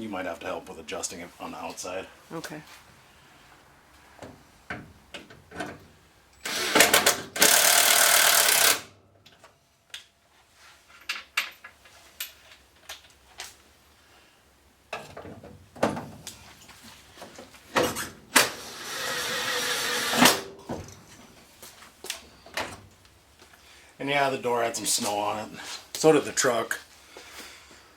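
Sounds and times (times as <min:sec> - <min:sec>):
cordless power tool running: 0:06.5 - 0:08.8, 0:18.5 - 0:20.4.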